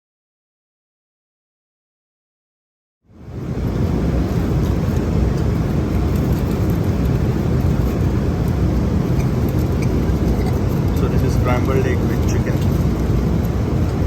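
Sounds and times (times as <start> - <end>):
airliner cabin engine rumble: 3.1 - 14.0.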